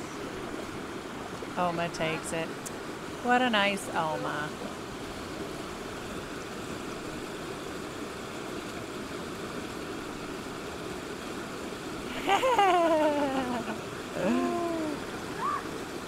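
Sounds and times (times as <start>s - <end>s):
river water rushing: 0.0s - 16.0s
long vocal sound sliding down: 13.4s - 15.6s.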